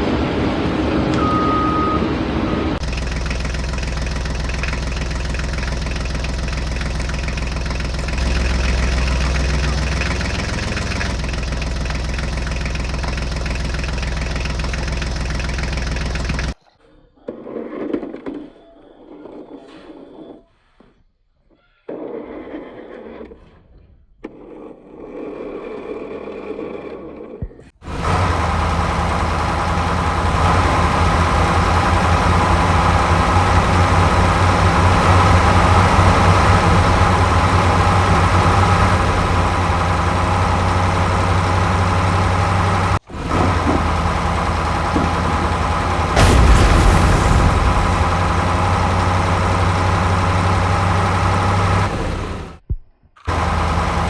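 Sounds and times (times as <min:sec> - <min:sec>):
heavy vehicle engine running: 0:00.0 - 0:16.6, 0:27.8 - 0:52.6, 0:53.3 - 0:54.0
loud burst of noise: 0:27.8 - 0:52.6
quiet clatter: 0:27.9 - 0:52.6.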